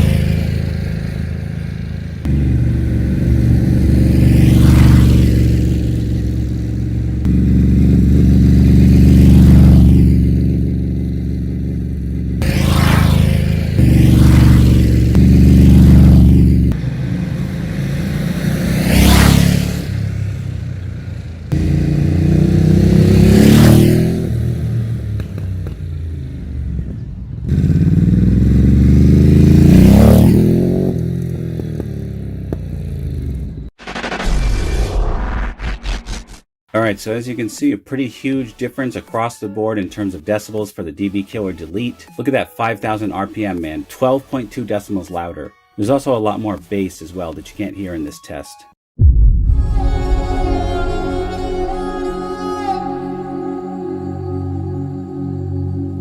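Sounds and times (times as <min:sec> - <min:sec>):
motorcycle engine idling and revving: 0:00.0 - 0:34.1.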